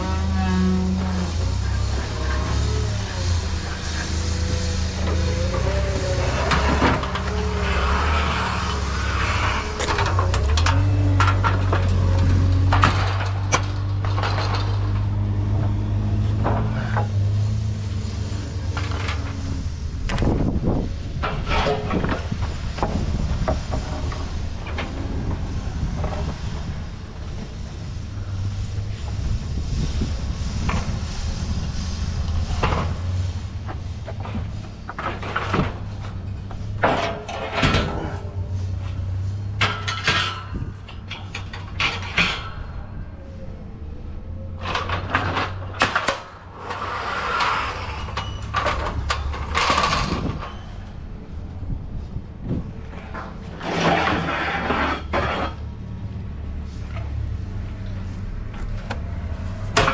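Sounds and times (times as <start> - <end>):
pallet loading knocks and rattles: 34.1 - 38.4.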